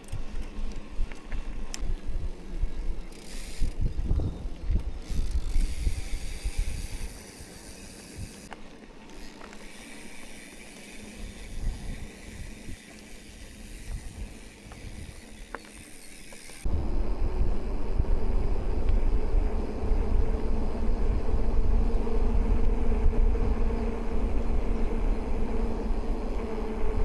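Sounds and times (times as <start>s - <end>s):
bike tyre rumble: 0.0s - 27.0s
wind on microphone: 1.8s - 7.6s, 11.2s - 12.8s, 16.7s - 27.0s.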